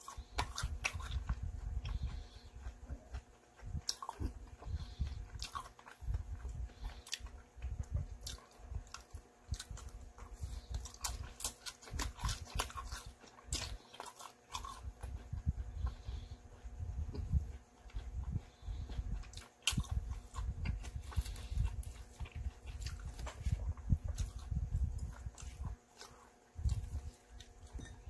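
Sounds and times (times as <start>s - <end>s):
person chewing with smacking: 0.0s - 28.0s.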